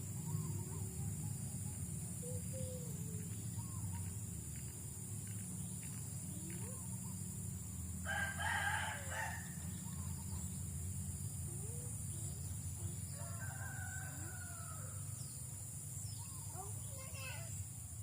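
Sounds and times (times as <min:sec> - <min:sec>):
rooster crowing: 0:08.0 - 0:10.0, 0:13.1 - 0:15.2.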